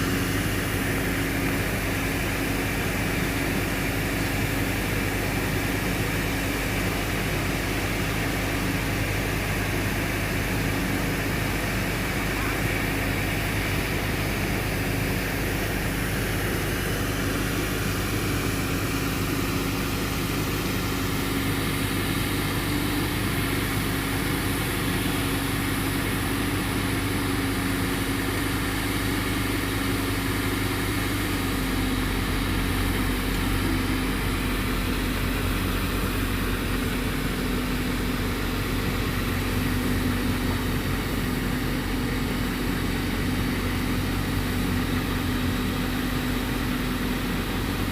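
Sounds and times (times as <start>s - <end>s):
fire engine running steadily: 0.0s - 47.9s.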